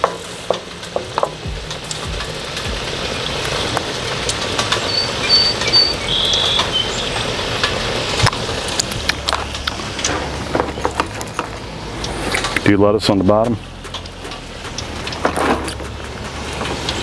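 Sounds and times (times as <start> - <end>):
patty sizzling in hot oil: 0.0 - 12.7.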